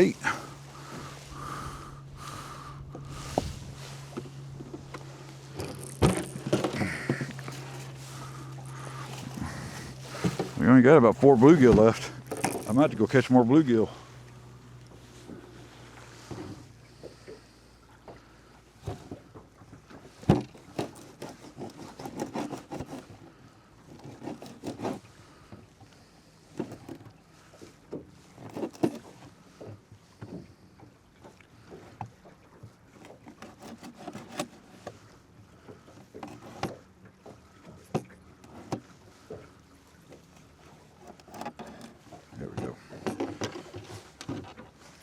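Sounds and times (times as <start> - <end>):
fishing gear knocking in boat: 0.2 - 13.2, 18.8 - 25.0, 35.6 - 39.5, 40.1 - 45.0.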